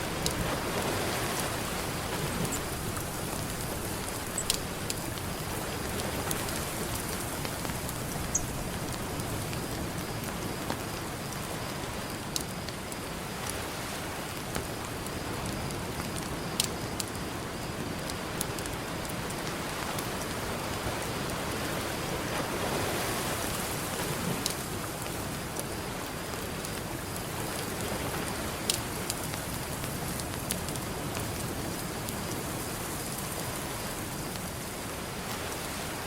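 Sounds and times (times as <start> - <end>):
campfire crackling: 0.0 - 36.0
ocean surf: 0.0 - 36.0.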